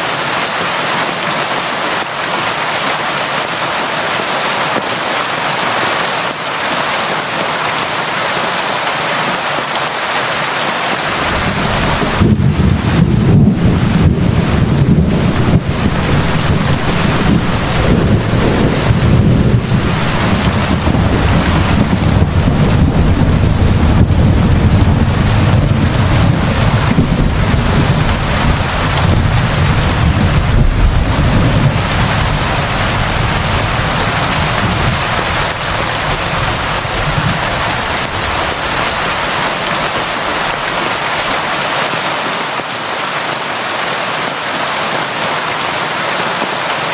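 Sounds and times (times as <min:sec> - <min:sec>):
heavy rain falling: 0:00.0 - 0:46.9
deep rumble: 0:11.1 - 0:39.2.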